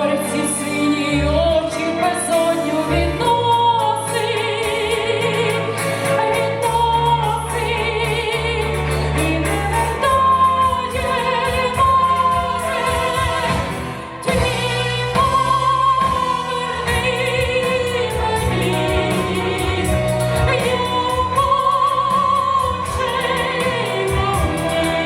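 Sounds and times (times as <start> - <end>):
instrumental accompaniment: 0.0 - 25.0
woman singing with vibrato: 0.0 - 25.0.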